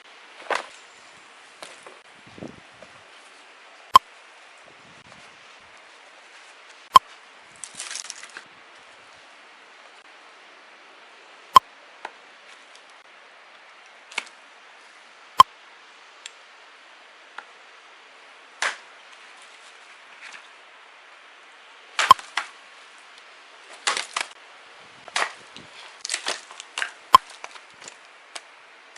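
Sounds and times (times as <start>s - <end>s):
rustle: 0.0s - 28.9s
axe splitting firewood: 23.7s - 24.3s, 25.1s - 28.0s.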